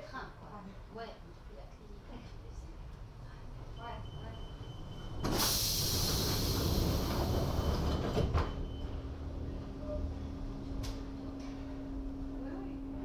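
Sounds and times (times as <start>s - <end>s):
faint high beep: 3.8s - 5.3s
compressed air hissing: 5.4s - 6.8s.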